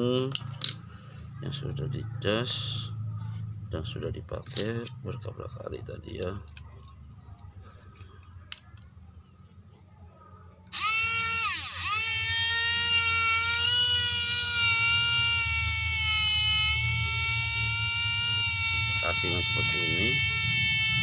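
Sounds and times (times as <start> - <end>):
small motor high whine: 10.6 - 21.0.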